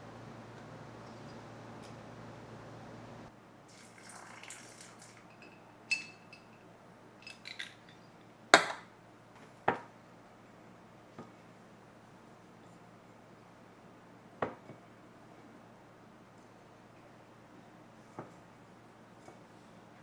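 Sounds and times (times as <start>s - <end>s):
kitchenware clinks and knocks: 7.2s - 8.9s.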